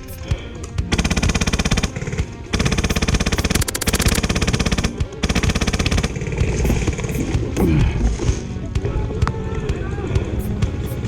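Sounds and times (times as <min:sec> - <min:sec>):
airsoft gun firing bursts: 0:00.0 - 0:08.4.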